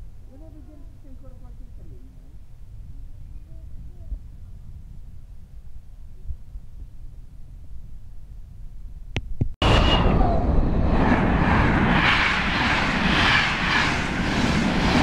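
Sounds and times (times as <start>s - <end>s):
train passing at speed: 9.6s - 15.0s.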